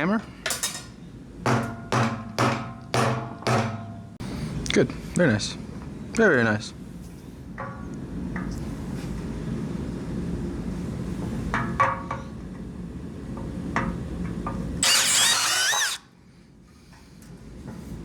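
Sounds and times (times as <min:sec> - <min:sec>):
high gliding squeal: 0:14.8 - 0:16.0
power drill boring into plastic: 0:14.8 - 0:16.0.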